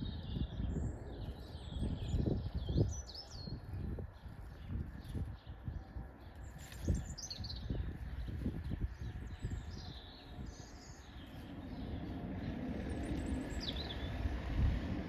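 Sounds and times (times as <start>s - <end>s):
small birds chirping: 0.0s - 15.0s
low rumble: 7.7s - 15.0s.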